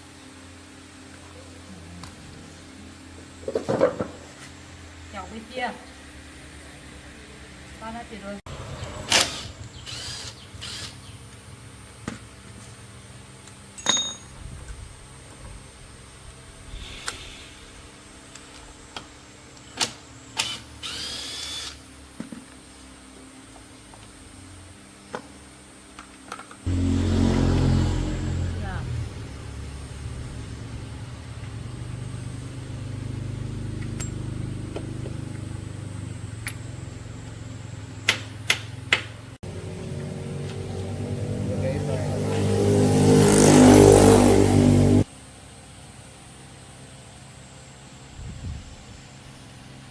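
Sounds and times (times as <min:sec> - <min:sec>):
sharp metallic clink: 0:13.8 - 0:14.4
engine running at low speed: 0:23.2 - 0:49.9.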